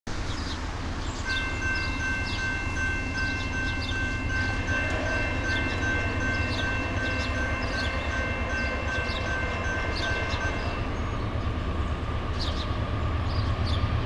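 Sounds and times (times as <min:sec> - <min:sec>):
distant freight train rumble: 0:00.1 - 0:14.0
high pulsing ringing tone: 0:01.3 - 0:11.3.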